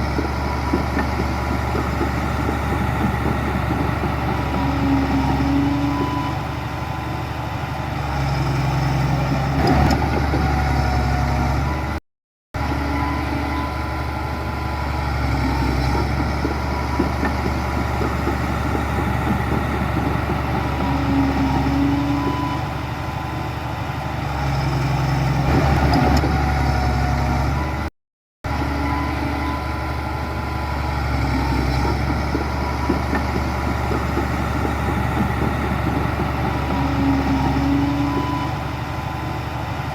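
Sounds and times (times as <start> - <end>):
heavy diesel engine droning: 0.0 - 12.0, 12.6 - 39.9.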